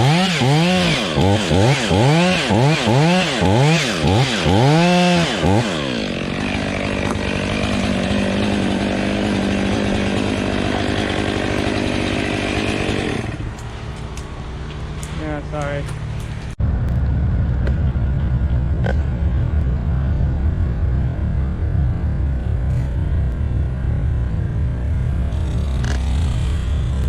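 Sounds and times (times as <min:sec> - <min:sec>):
chainsaw revving: 0:00.0 - 0:13.8.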